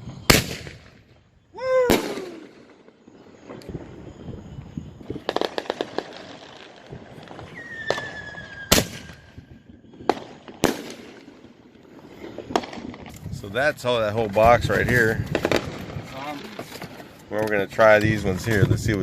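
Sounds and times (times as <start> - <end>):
firework bangs: 0.0 - 18.9
firework crackles: 0.0 - 19.0
falling whistle: 7.1 - 10.1.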